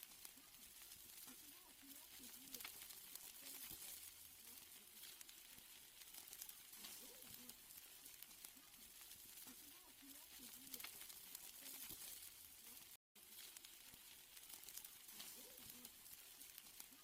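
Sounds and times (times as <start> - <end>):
steak sizzling on a grill: 0.0 - 17.0.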